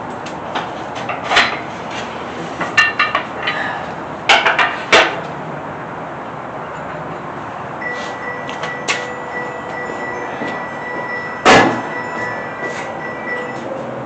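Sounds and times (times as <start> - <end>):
metal clanking and knocking: 10.4 - 13.7.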